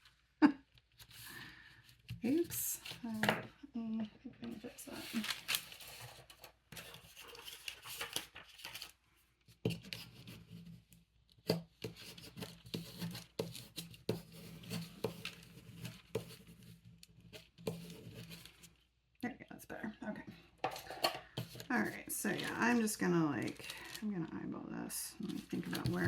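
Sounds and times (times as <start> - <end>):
paper rubbing and rustling: 4.5 - 9.0, 11.9 - 18.8, 20.8 - 24.0, 25.2 - 26.0.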